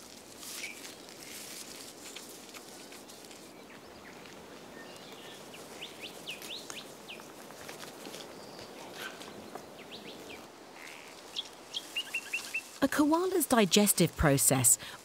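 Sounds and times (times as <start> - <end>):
outdoor bush ambience hiss: 0.0 - 15.0
small birds chirping: 3.1 - 12.8.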